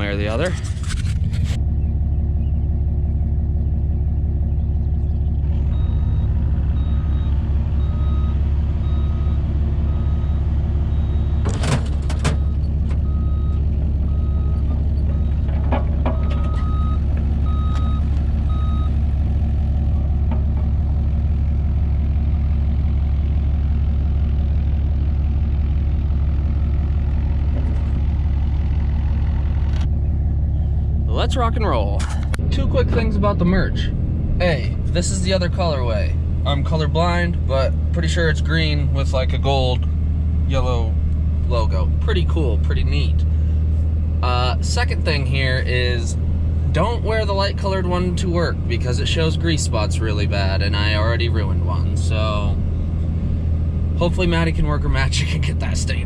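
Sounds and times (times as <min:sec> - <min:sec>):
excavator engine running: 0:00.0 - 0:56.0
backup alarm beeping: 0:12.4 - 0:15.5, 0:16.1 - 0:19.0.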